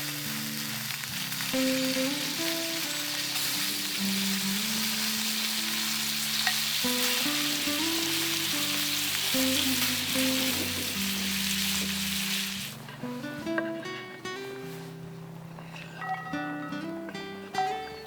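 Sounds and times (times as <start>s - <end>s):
food sizzling in a pan: 0.0s - 13.8s
slow background music: 0.0s - 18.0s.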